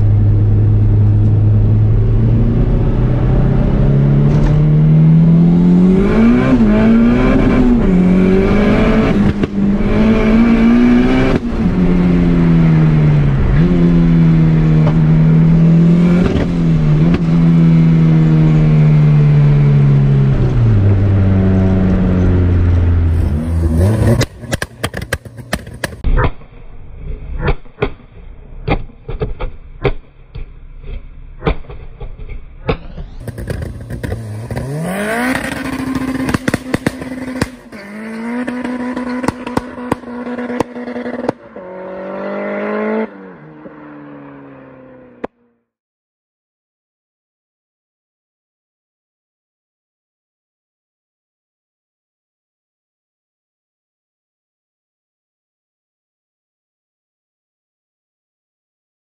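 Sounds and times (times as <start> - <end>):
car engine accelerating through gears: 0.0 - 25.0, 33.0 - 45.4
exhaust cracks and pops: 24.0 - 37.9.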